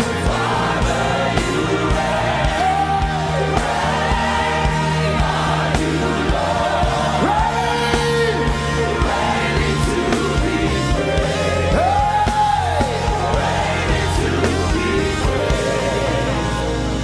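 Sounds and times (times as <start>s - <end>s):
gospel singing over band: 0.0s - 17.0s
held bass notes: 0.0s - 17.0s
steady drum beat: 0.0s - 17.0s.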